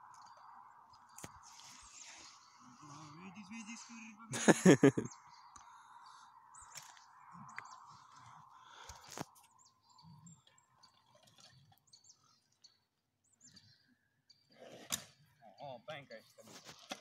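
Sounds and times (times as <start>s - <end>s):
faint bird chirps: 0.0s - 14.7s.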